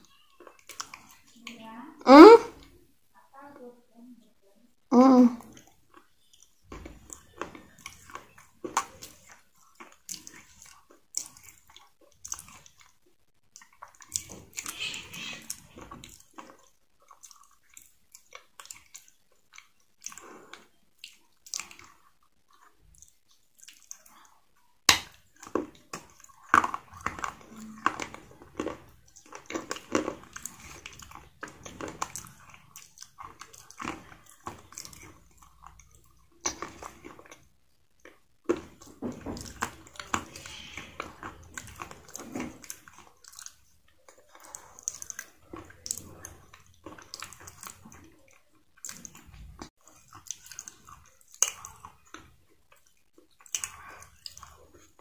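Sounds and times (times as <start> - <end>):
wet mouth sounds: 2.0 - 2.6, 13.5 - 55.0
fried chicken crunching: 24.9 - 55.0.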